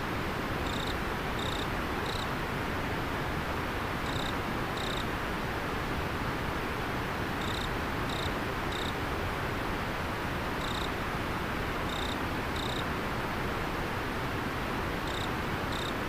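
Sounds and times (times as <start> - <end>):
insect chirping: 0.6 - 2.3, 4.0 - 5.0, 7.4 - 8.9, 10.6 - 10.9, 11.9 - 12.8, 15.1 - 16.0.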